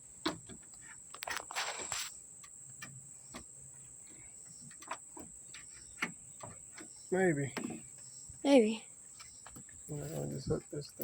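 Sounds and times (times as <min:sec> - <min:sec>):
insect chirring: 0:00.0 - 0:11.0
light clicks and rustle: 0:00.2 - 0:08.5.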